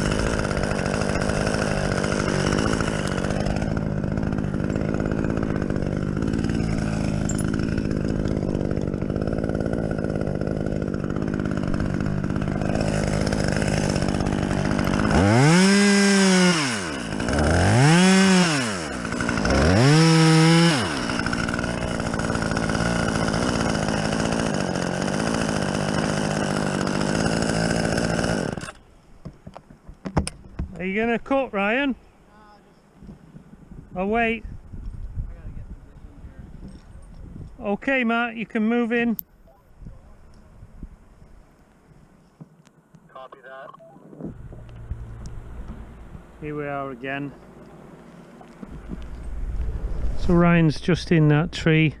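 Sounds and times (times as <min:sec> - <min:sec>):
chainsaw idling and revving: 0:00.0 - 0:28.8.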